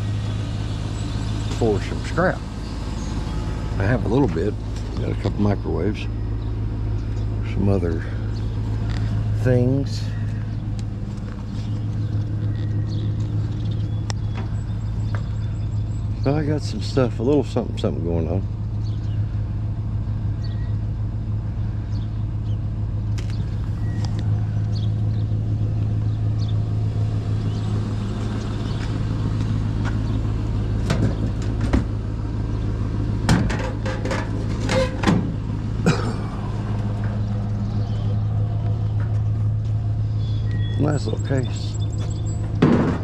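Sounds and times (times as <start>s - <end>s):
vehicle engine running: 0.0s - 43.0s
sharp knocks and clatters: 30.8s - 32.0s, 33.2s - 35.4s, 42.0s - 43.0s.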